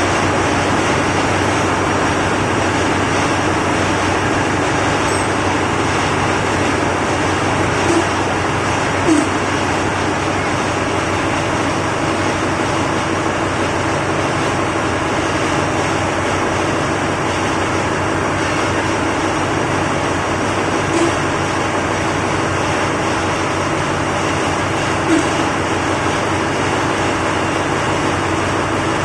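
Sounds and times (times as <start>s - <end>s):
marine diesel engine running: 0.0s - 29.0s.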